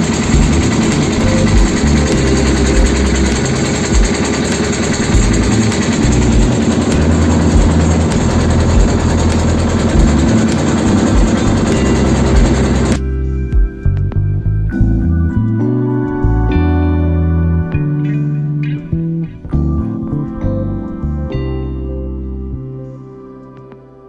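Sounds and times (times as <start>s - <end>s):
motorboat engine running: 0.0s - 13.6s
guitar music: 0.0s - 24.0s.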